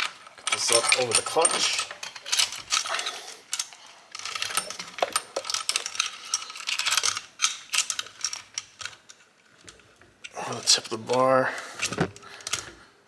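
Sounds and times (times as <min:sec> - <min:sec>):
chainsaw chain clinking: 0:00.0 - 0:09.1.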